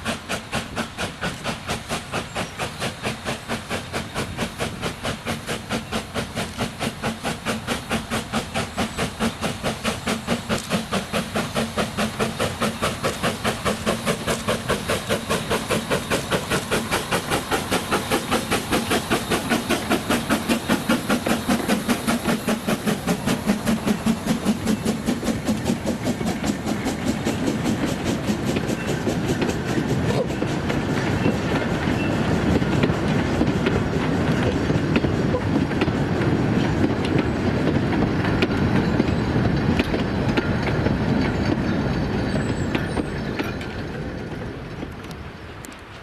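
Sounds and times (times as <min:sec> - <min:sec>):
steam hiss: 0:00.0 - 0:44.4
steam locomotive chuffing: 0:00.0 - 0:46.0.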